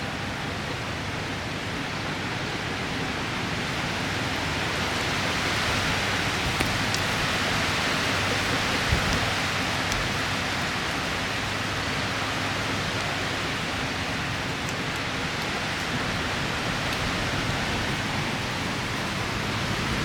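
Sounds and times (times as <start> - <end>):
heavy rain in strong wind: 0.0 - 20.0
raindrop ticks: 6.0 - 11.7, 13.9 - 19.9.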